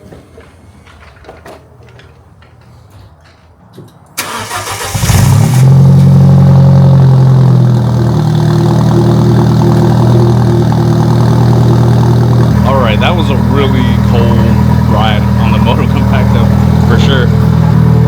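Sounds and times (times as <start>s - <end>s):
car engine starting and idling: 4.2s - 18.0s.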